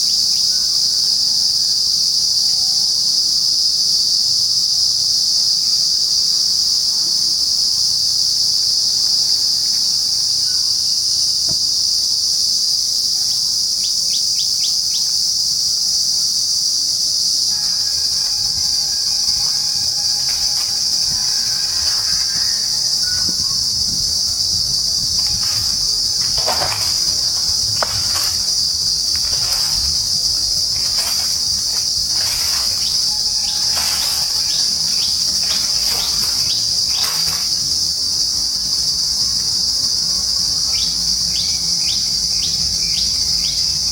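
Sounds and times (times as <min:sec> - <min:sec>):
insects chorus: 0:00.0 - 0:43.9
birds calling: 0:17.5 - 0:37.9.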